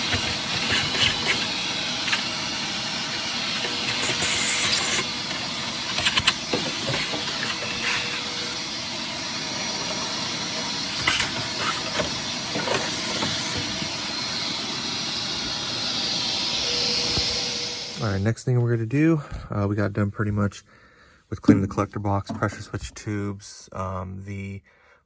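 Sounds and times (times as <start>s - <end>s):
vacuum cleaner running: 0.0s - 18.7s.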